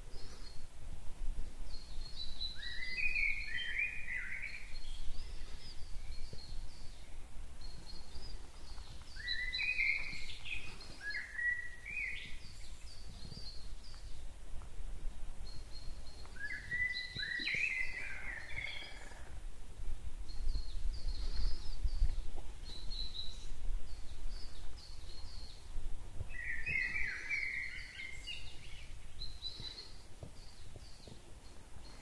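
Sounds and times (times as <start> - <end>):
birds singing: 1.7 - 14.3, 15.4 - 19.5, 20.3 - 32.0.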